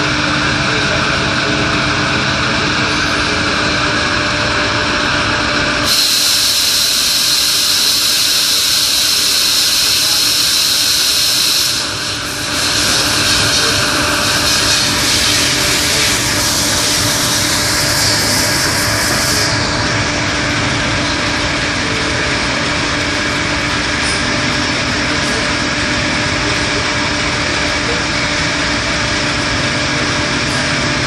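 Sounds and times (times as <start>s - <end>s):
machine hum: 0.0s - 31.0s
high hiss: 5.9s - 19.4s.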